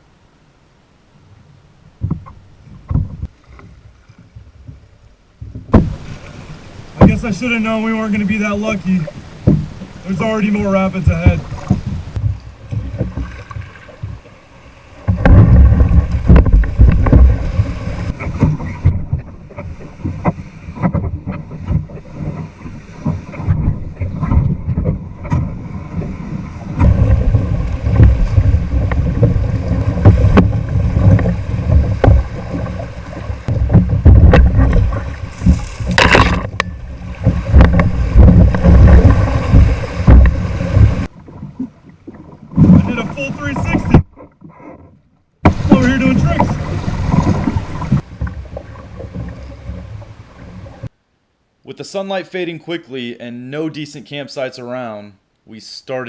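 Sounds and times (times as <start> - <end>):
rushing splashing water: 1.9 - 44.3, 45.4 - 51.0
wind buffeting microphone: 9.0 - 14.3, 15.0 - 44.2, 45.4 - 50.9
knocks: 15.1 - 17.4, 26.8 - 32.7, 33.5 - 41.1.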